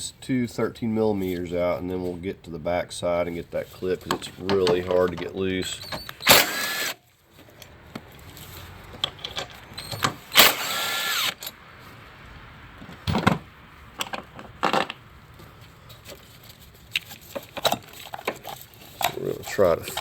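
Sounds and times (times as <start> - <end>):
power tool burst: 5.7 - 7.0, 9.7 - 11.6.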